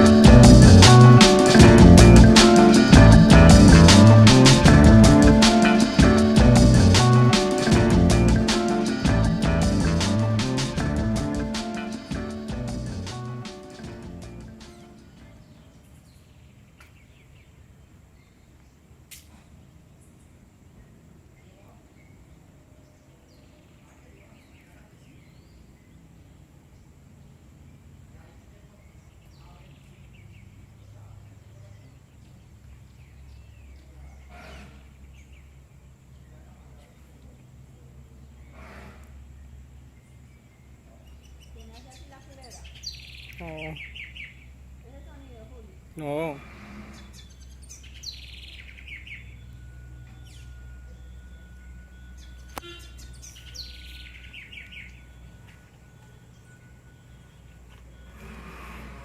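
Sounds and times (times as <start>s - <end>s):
steady low rumble: 0.0s - 14.6s
small birds chirping: 0.0s - 58.3s
bird singing falling chirps: 40.1s - 44.5s, 47.0s - 58.2s.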